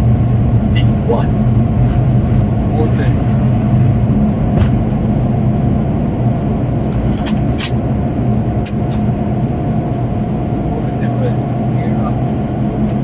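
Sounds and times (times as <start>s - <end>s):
jet engine hum and airflow: 0.0s - 13.0s
sharp clicks or rattles: 6.9s - 7.8s.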